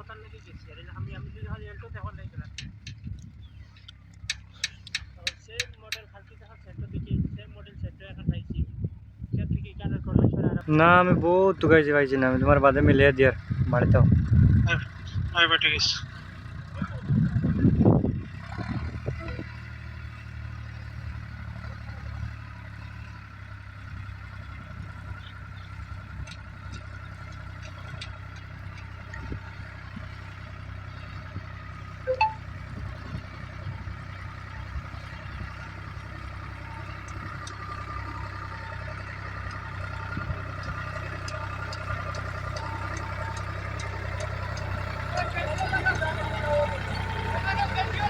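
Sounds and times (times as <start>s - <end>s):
vehicle engine humming: 0.0s - 48.0s.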